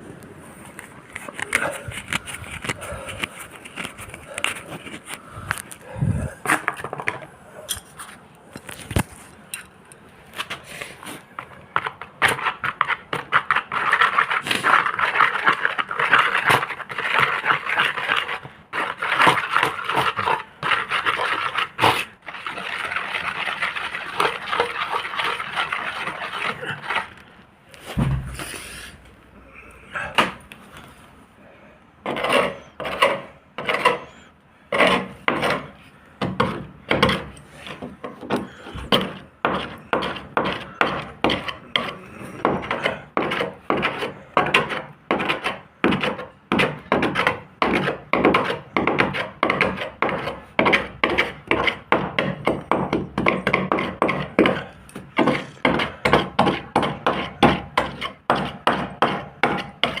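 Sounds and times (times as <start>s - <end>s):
hand sanding rasping strokes: 12.3s - 27.1s.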